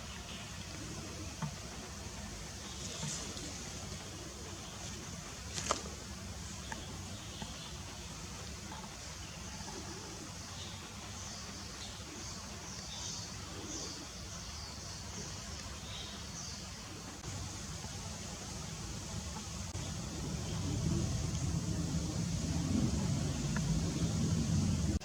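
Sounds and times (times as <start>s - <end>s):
low wind rumble: 17.2s - 25.0s.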